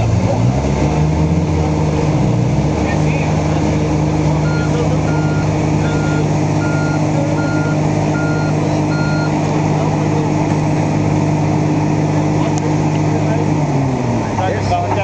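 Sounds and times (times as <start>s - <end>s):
vehicle engine running: 0.0s - 15.0s
reversing alarm beeping: 4.4s - 9.4s.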